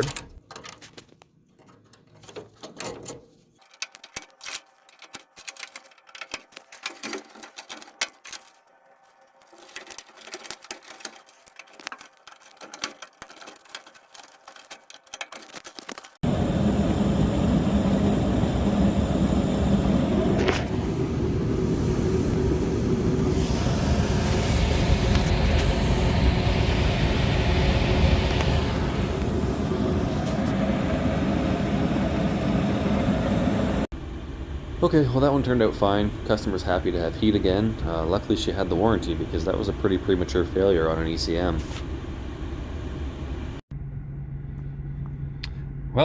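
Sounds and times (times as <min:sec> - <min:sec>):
small parts clicking and tapping: 0:00.0 - 0:16.2
loud steady rumbling noise: 0:16.2 - 0:46.0.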